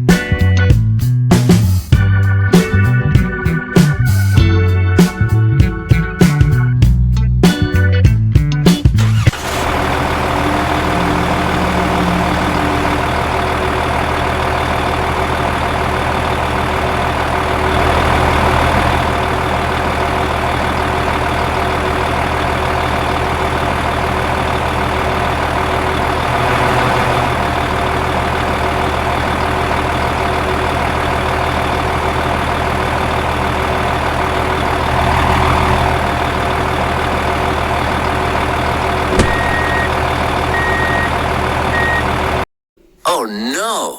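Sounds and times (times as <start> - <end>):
tractor engine idling: 9.0 - 42.5.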